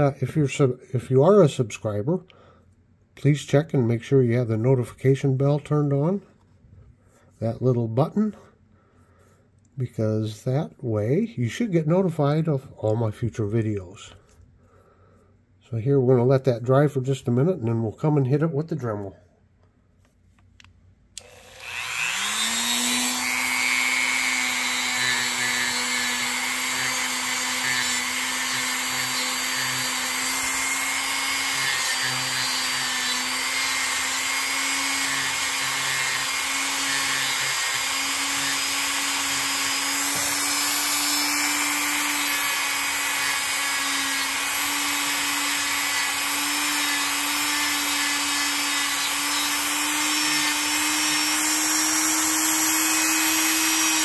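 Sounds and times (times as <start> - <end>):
rotary tool motor running: 21.2 - 54.0.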